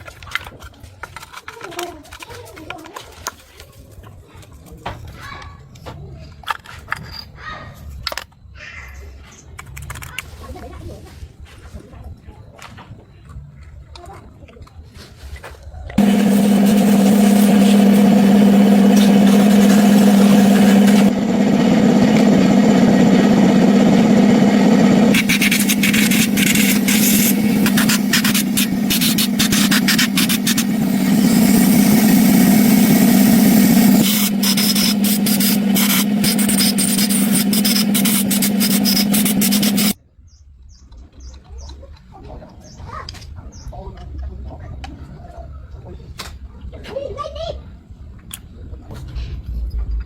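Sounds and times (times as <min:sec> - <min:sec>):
motor humming with rasping hiss: 0:16.0 - 0:40.0.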